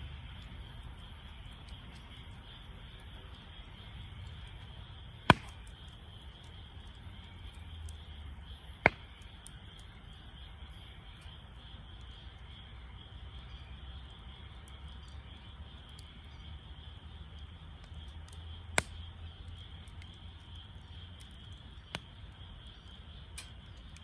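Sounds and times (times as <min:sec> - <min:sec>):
burning wood popping: 0:00.0 - 0:11.6, 0:17.8 - 0:24.0
campfire wood burning: 0:00.0 - 0:24.0.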